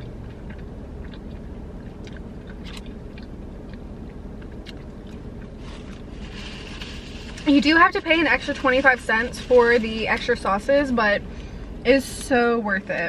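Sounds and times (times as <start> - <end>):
wet chewing and mouth clicks: 0.0 - 6.2
steady low hum: 0.0 - 13.0.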